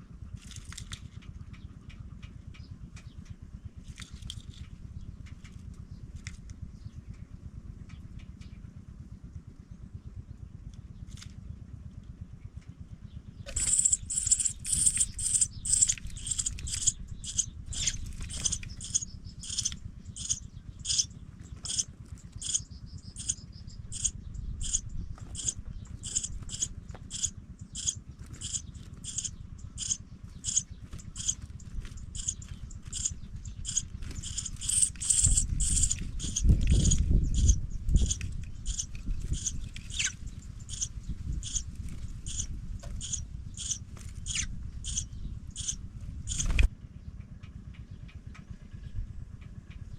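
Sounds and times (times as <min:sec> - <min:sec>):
low steady rumble: 0:00.0 - 0:49.9
nestlings chipping: 0:13.5 - 0:45.0, 0:45.6 - 0:46.7.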